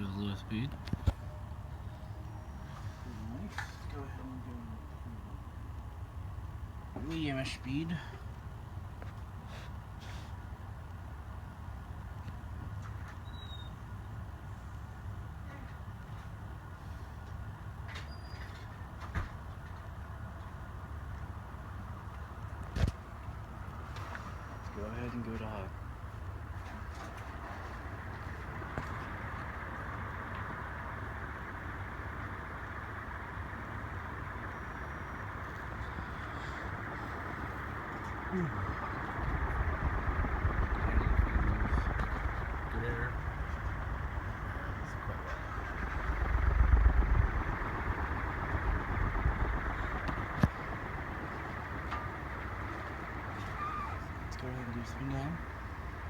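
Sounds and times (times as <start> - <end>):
ceiling fan air rushing: 22.3 - 56.0
fan motor humming: 23.4 - 56.0.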